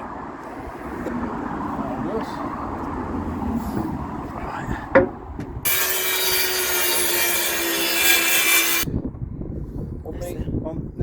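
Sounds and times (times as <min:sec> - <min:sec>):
power tool cutting steel: 0:05.7 - 0:08.9.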